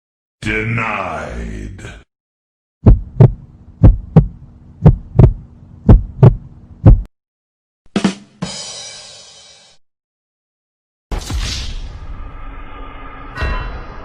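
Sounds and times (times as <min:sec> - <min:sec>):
heartbeat thumps: 0:02.8 - 0:07.1
steady low hum: 0:02.8 - 0:07.1
crash-like ring: 0:11.2 - 0:14.0.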